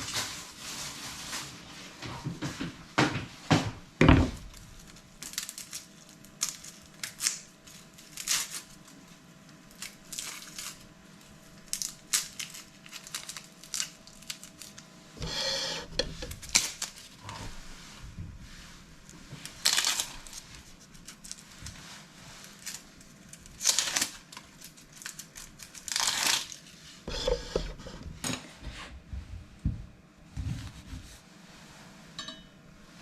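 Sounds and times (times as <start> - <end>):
knocks and clicks of food preparation: 2.0 - 4.6, 29.6 - 30.7.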